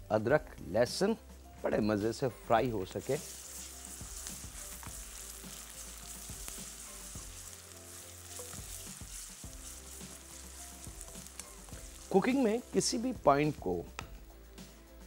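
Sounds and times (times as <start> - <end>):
food sizzling in hot oil: 1.3 - 14.8
spoon stirring in wok: 3.0 - 12.8.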